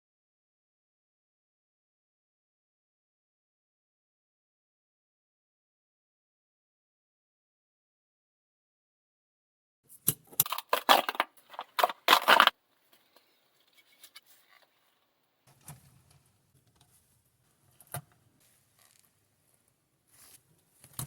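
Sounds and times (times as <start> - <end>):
faint handling noise: 10.0 - 21.0
plastic packaging rattling: 10.4 - 14.8.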